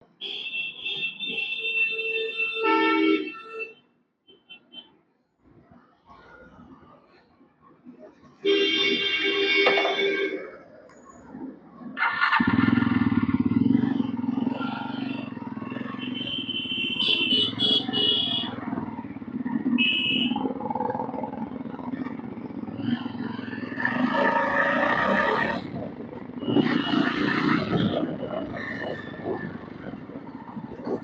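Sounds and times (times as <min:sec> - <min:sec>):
motorcycle engine running: 0:12.3 - 0:23.9.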